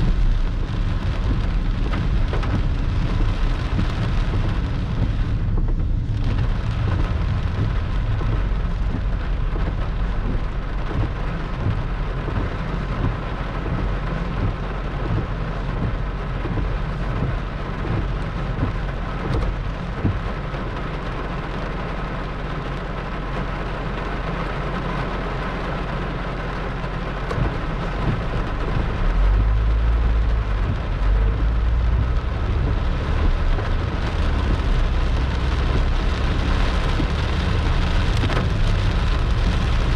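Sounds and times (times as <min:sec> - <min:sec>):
heavy rain pouring: 0:00.0 - 0:39.9
low rumble: 0:00.0 - 0:39.9.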